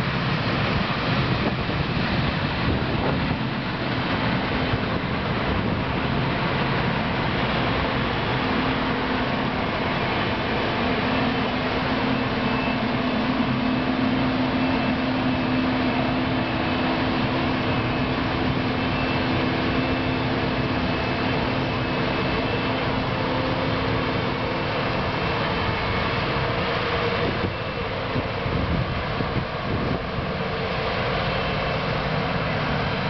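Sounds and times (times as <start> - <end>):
combine harvester running: 0.0 - 33.0.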